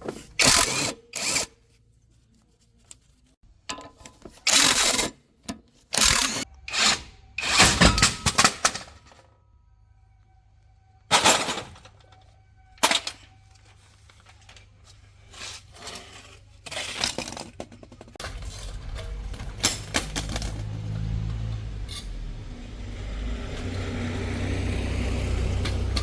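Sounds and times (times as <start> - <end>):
metal clanks and knocks: 3.6 - 4.6, 6.0 - 9.3, 11.1 - 13.4, 16.9 - 22.2.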